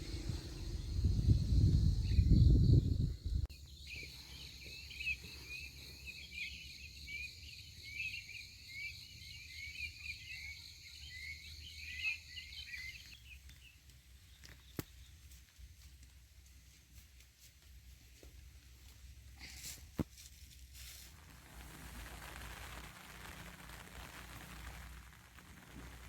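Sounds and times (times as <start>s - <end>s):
low rumble: 0.0s - 3.5s.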